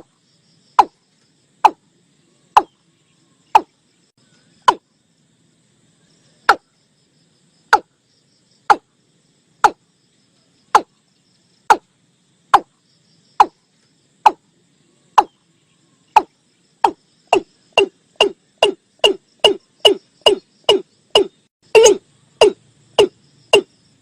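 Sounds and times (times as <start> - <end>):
bird calling: 14.3 - 23.7.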